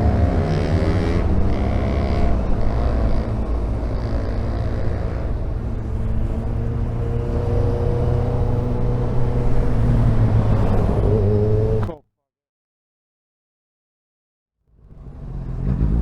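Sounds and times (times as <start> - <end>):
motorcycle engine droning: 0.0 - 12.0.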